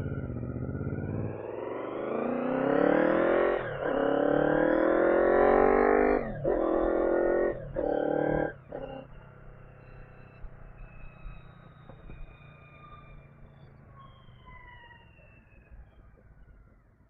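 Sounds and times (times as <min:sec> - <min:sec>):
motorcycle engine revving: 0:00.0 - 0:12.2.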